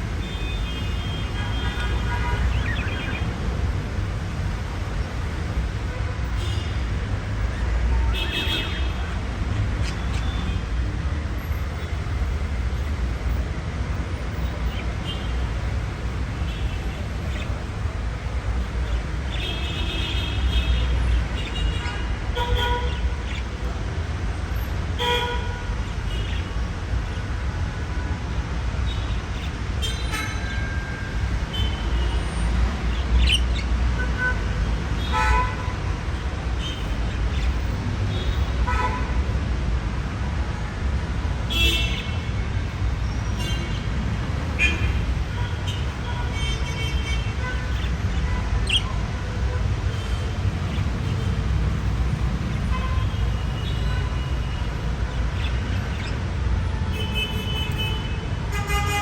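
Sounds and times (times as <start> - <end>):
budgies chirping: 2.4 - 3.4, 9.8 - 10.4, 17.3 - 17.6, 22.9 - 23.6, 32.8 - 33.7, 36.6 - 37.6, 47.6 - 49.0, 55.2 - 56.2.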